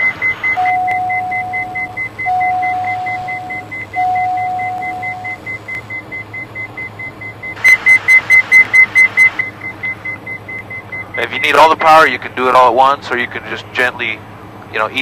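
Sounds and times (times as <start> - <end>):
rapid high beeping: 0.0 - 11.7
long steady warning tones: 0.0 - 15.0.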